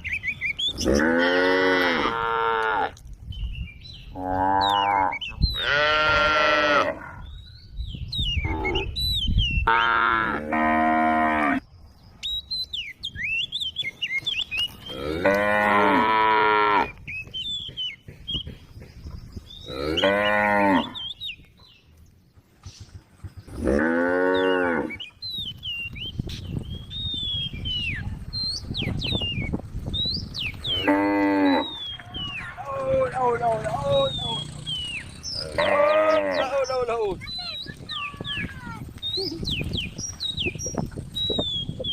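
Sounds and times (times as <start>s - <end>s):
birds chirping: 0.0s - 41.9s
cattle mooing: 0.8s - 3.0s, 4.2s - 7.2s, 14.9s - 16.9s, 19.7s - 21.0s, 23.6s - 25.0s, 30.7s - 31.8s, 35.3s - 36.6s.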